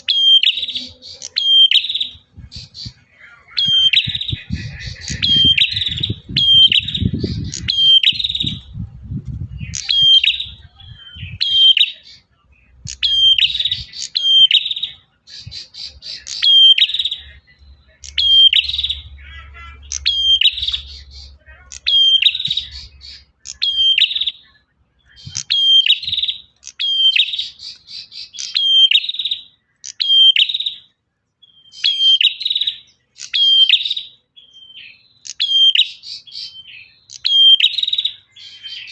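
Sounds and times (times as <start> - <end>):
bird chirping: 0.0 - 38.9
low rumble: 4.0 - 11.4.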